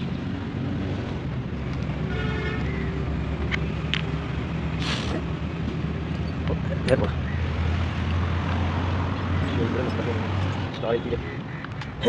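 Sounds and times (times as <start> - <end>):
short hiss: 4.8 - 5.2.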